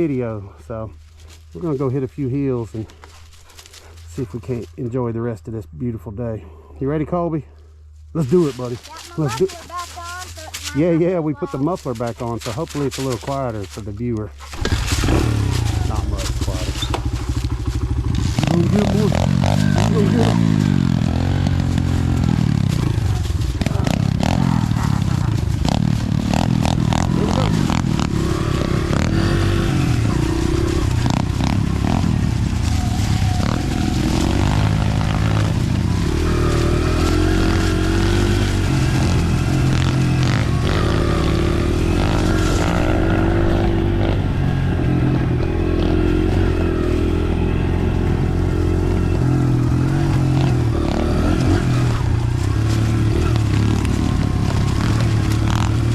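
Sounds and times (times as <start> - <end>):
dirt bike engine revving: 14.5 - 55.9.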